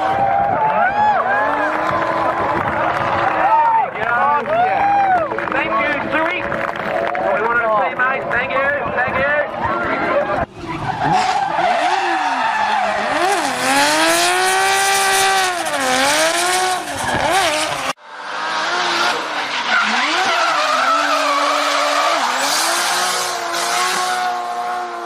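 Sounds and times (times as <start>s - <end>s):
race car engine revving: 9.5s - 25.0s
tyres squealing: 19.7s - 23.9s.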